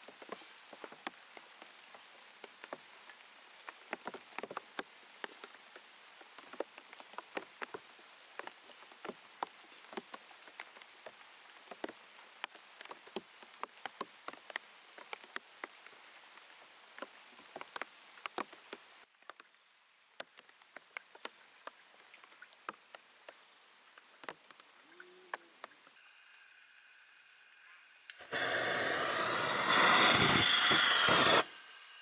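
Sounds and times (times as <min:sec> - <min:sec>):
raindrops tapping on plastic: 0:00.1 - 0:19.6, 0:20.2 - 0:25.9
rain hiss: 0:28.1 - 0:32.0.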